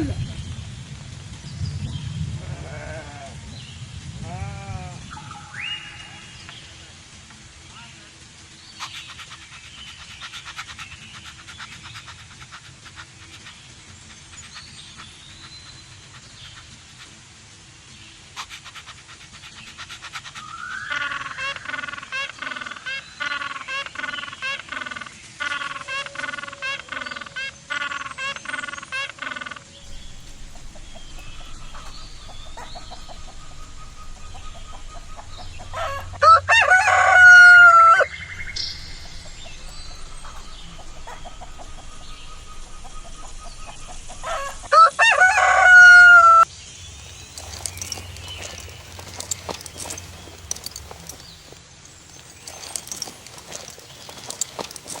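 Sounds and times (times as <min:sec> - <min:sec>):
chickens clucking: 0:29.8 - 0:55.0.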